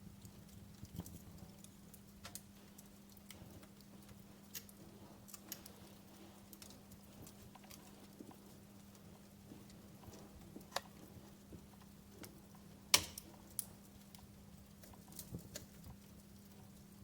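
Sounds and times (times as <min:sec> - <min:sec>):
low steady hum: 0:00.0 - 0:17.0
wood fire crackling: 0:00.0 - 0:17.0.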